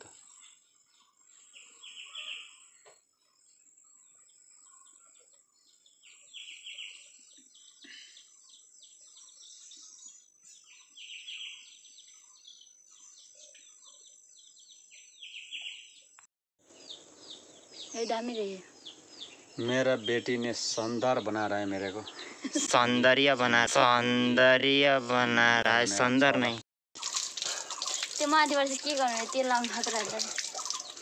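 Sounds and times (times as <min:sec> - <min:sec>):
bird singing chirping phrase: 0:16.8 - 0:24.0.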